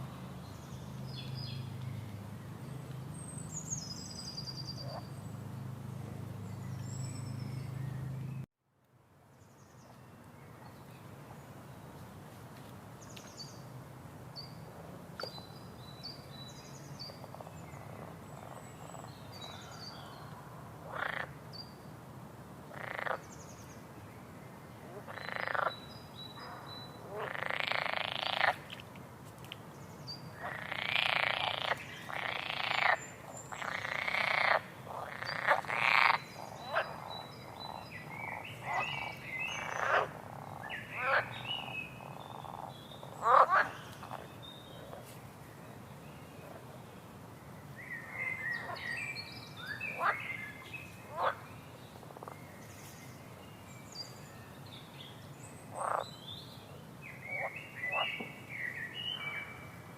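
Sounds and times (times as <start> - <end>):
frogs croaking: 4.7 - 5.2, 20.8 - 21.4, 22.7 - 23.4, 24.9 - 25.8, 26.4 - 28.8, 30.4 - 45.0, 49.6 - 52.4, 55.7 - 56.2, 57.1 - 59.6.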